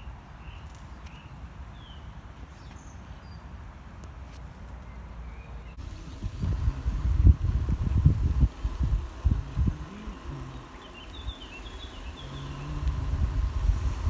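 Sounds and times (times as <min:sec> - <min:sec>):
small birds chirping: 0:04.8 - 0:14.0
steady low rumble: 0:05.8 - 0:14.0.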